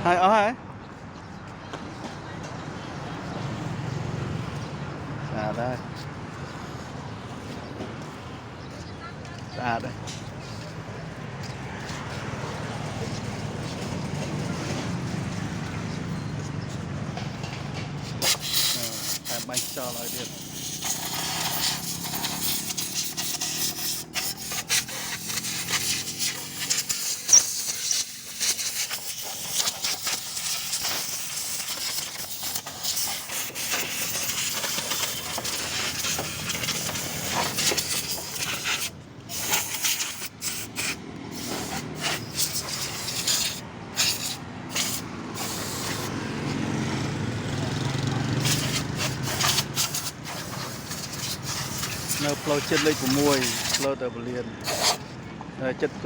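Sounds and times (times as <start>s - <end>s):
spray nozzle hissing: 18.2s - 46.1s, 48.4s - 53.9s, 54.6s - 55.0s.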